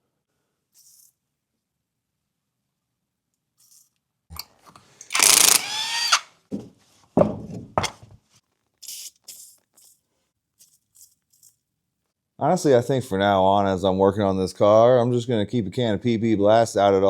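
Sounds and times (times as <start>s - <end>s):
power drill whirring: 5.0s - 6.3s.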